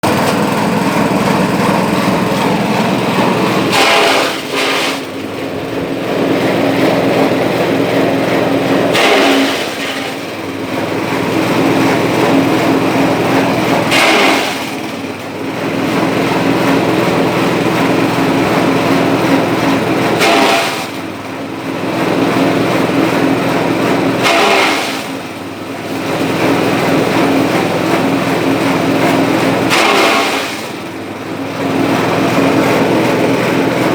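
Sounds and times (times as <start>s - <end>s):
chopper cutting bursts: 0.0s - 21.0s
fodder chopper engine running: 0.0s - 33.9s.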